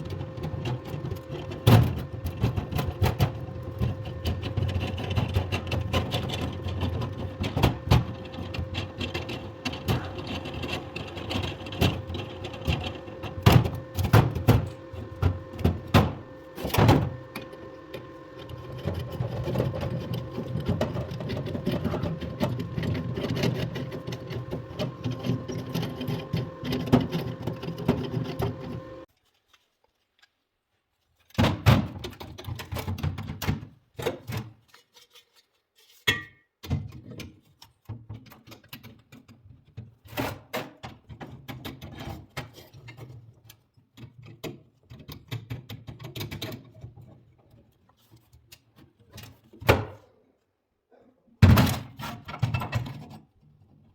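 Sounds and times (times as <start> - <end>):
machine hum: 0.0 - 29.1.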